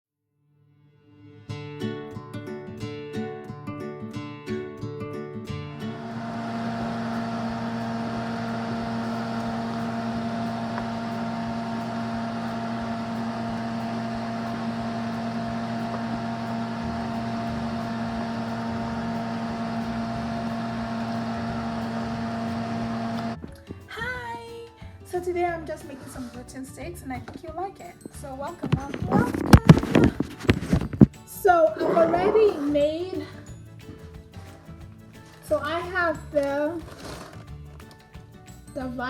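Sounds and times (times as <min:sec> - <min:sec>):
electric motor hum: 0:05.7 - 0:23.4.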